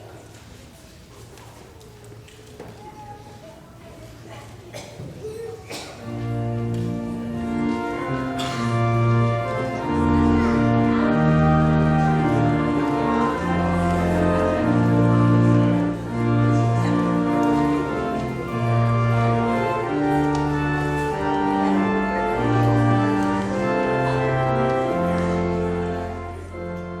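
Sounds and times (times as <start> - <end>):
church organ playing chords: 6.1 - 27.0.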